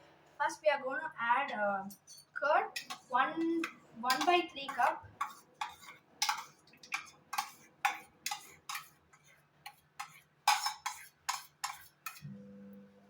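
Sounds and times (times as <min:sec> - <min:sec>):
spoon scraping and knocking a cup: 0:01.9 - 0:12.3.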